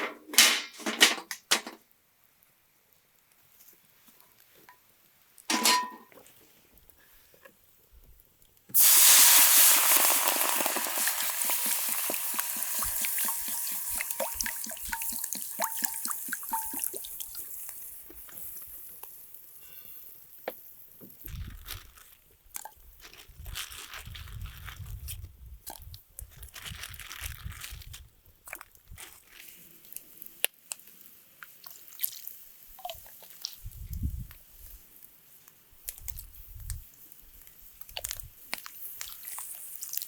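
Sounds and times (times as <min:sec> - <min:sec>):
loud sizzle in hot pan: 0:08.8 - 0:19.3.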